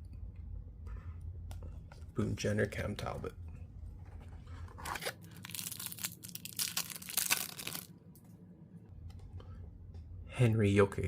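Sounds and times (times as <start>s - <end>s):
foil wrapper tearing and crinkling: 5.0s - 7.9s.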